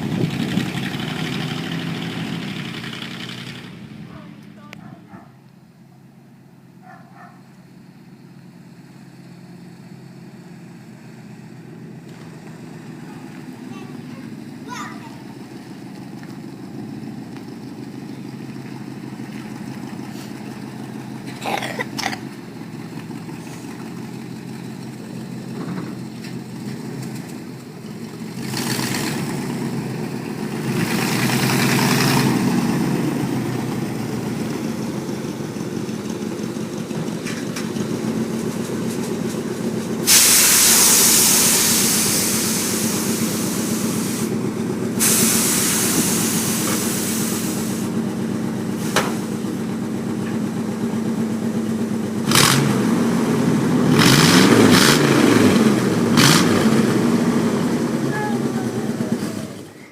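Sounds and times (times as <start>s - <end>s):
loud rush of air: 40.0s - 48.0s
air hissing through valves: 40.1s - 44.4s, 45.0s - 48.0s.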